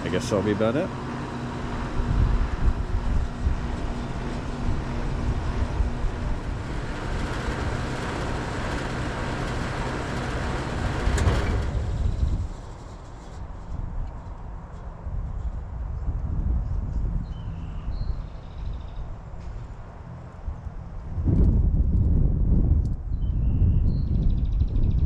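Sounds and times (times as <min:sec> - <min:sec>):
air conditioner hum: 0:00.0 - 0:13.6.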